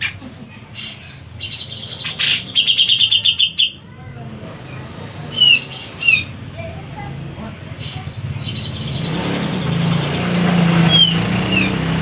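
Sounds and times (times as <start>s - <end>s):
bulbul calling: 0.0s - 3.8s, 4.7s - 6.4s, 10.9s - 11.8s.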